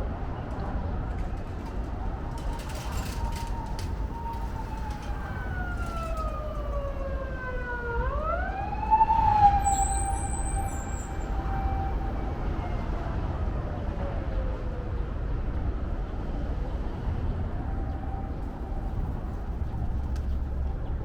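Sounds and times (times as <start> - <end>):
low city rumble: 0.0 - 21.0
emergency siren wailing: 2.2 - 15.4, 17.0 - 19.8.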